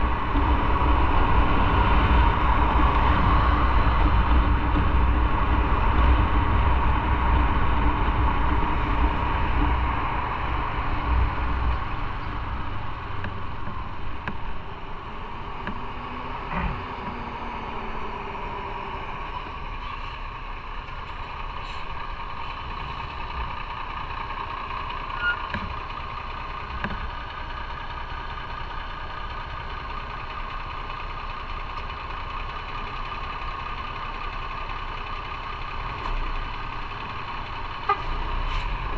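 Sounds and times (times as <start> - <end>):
wind rumble: 0.0 - 24.7.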